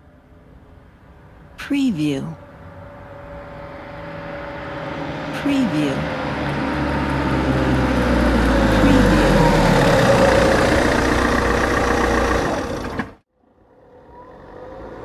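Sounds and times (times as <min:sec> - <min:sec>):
car engine running: 0:05.4 - 0:13.2
car approaching over gravel: 0:06.1 - 0:13.2.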